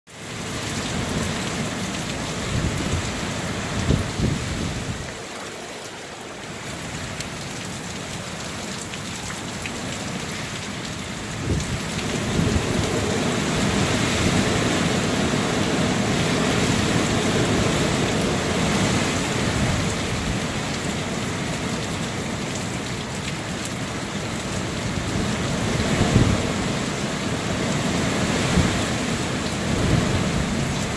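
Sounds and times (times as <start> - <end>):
strong wind blowing in gusts: 0.7 - 5.3, 11.2 - 21.8, 24.3 - 30.9.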